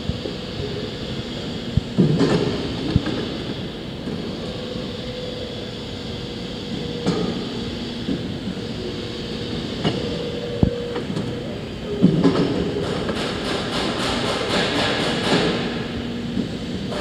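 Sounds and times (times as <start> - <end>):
faint machine whine: 0.0 - 13.2.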